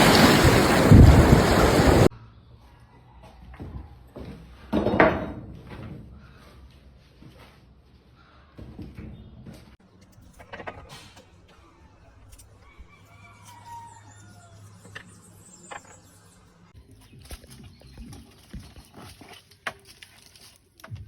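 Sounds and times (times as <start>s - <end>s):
rooster crowing: 12.6s - 14.9s.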